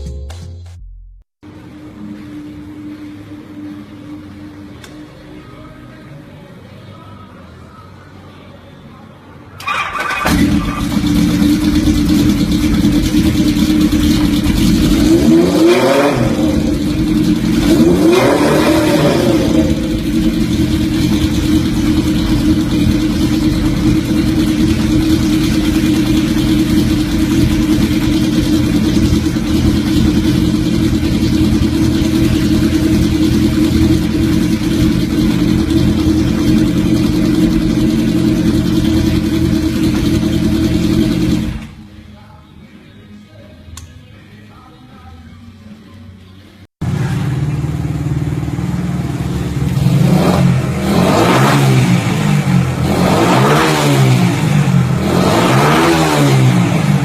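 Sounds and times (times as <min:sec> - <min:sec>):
motorcycle engine idling and revving: 0:01.4 - 0:06.5, 0:09.6 - 0:41.9, 0:46.8 - 0:57.0.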